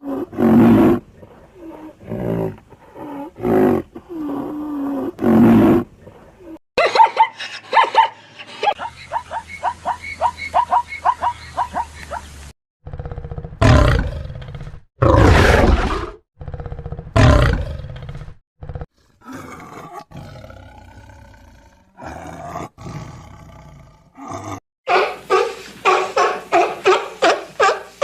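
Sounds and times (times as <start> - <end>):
tiger growling: 0.0 - 6.5
tiger roaring: 12.8 - 24.6.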